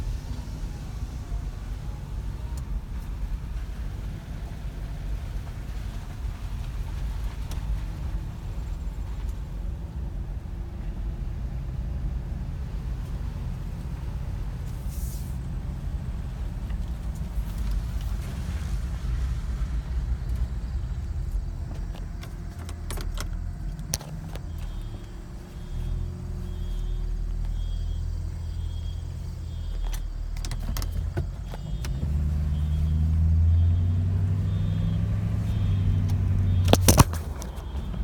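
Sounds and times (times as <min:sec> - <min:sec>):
car road and engine rumble: 0:00.0 - 0:38.0
sharp clicks and knocks: 0:21.6 - 0:25.1, 0:36.6 - 0:38.0.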